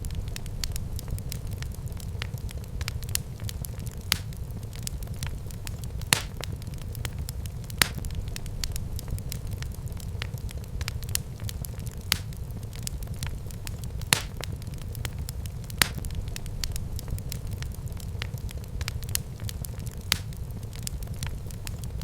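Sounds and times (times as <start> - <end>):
fire popping and crackling: 0.0 - 22.0
wood fire burning: 0.0 - 22.0.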